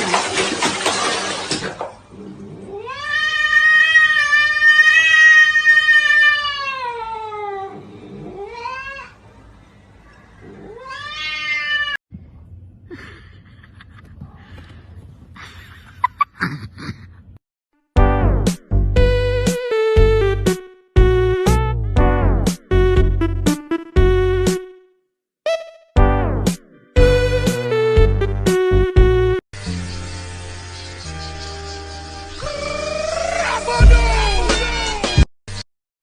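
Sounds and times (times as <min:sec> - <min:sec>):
cat yowling: 0:02.7 - 0:09.2, 0:10.4 - 0:12.0, 0:32.4 - 0:35.1.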